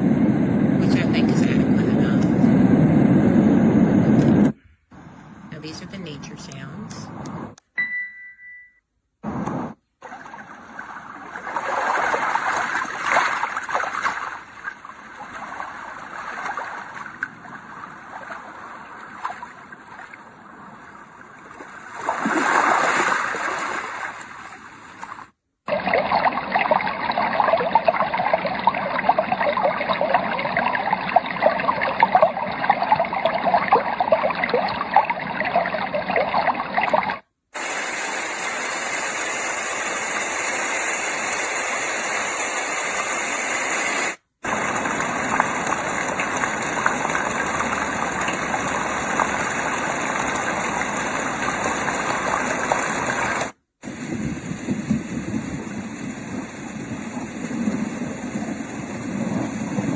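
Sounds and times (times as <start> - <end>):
white noise hiss: 0.0 - 7.6, 9.2 - 10.0, 37.5 - 59.9
flowing stream water: 10.0 - 54.0.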